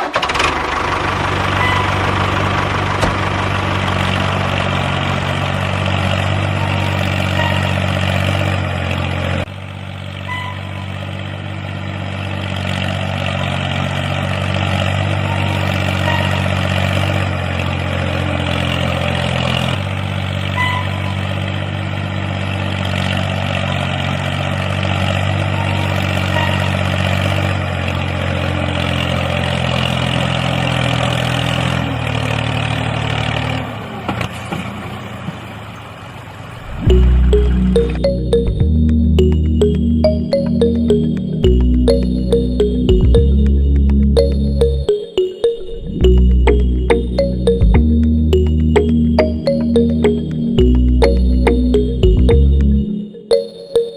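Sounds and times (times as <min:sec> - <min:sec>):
tractor engine idling: 0:00.0 - 0:33.8.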